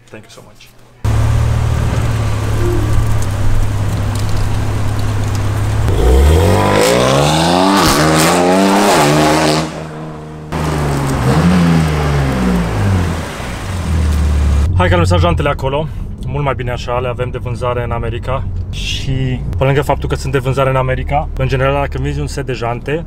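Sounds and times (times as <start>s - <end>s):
car engine idling and revving: 1.1s - 15.4s.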